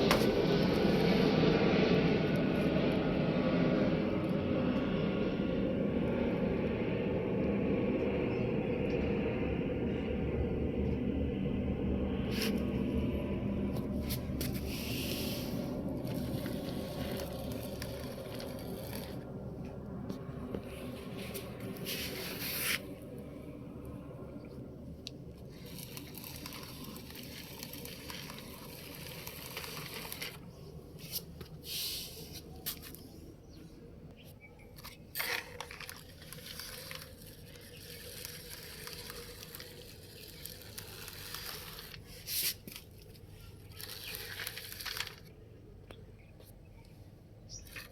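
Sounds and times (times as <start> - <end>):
toy trucks scraping and rustling: 12.3 - 23.1, 25.0 - 33.1, 34.6 - 45.4, 47.5 - 47.9.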